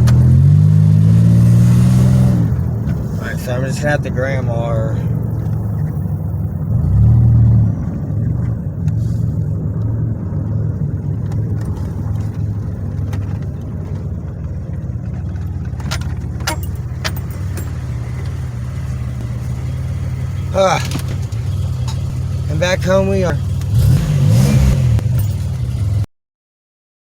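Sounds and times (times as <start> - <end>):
car engine running: 0.0 - 26.1
road noise: 0.0 - 26.1.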